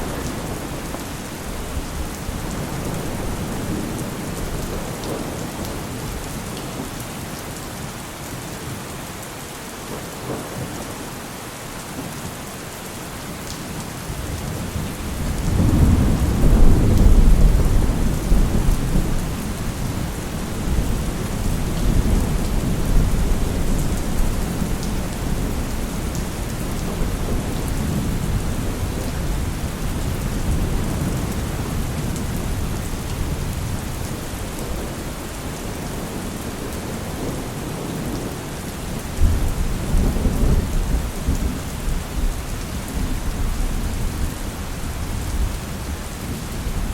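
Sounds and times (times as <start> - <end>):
heavy rain falling: 0.0 - 46.9
thunder rumbling: 14.5 - 34.0.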